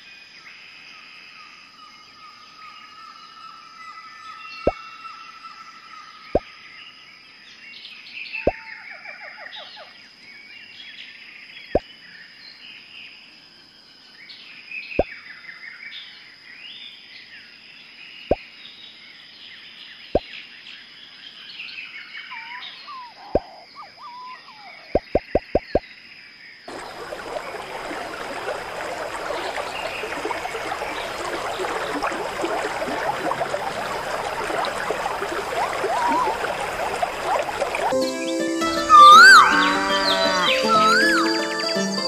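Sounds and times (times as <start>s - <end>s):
birds chirping and trilling: 21.6s - 25.8s, 26.7s - 42.0s.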